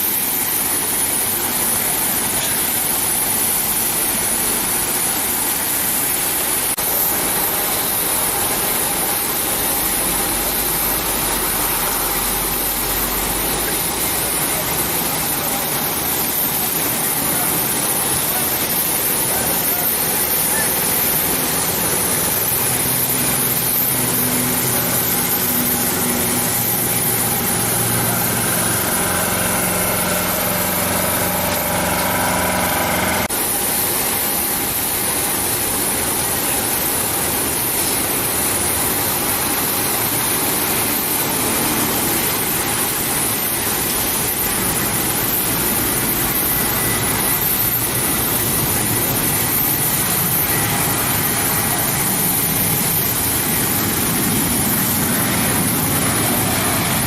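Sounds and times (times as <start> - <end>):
turboprop engines droning: 0.1 - 35.5, 36.4 - 57.0
jet engines rushing: 48.4 - 57.0.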